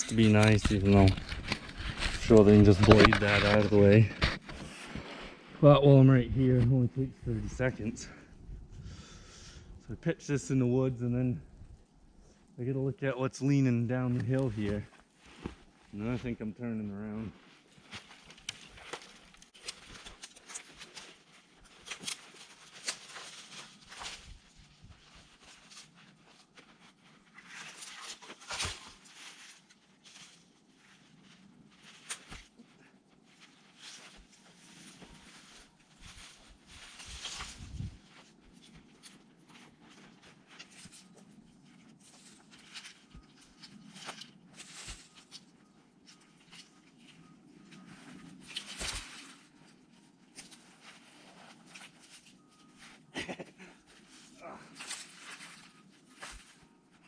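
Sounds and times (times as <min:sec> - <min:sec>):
footsteps crunching through snow: 0:00.1 - 0:06.8.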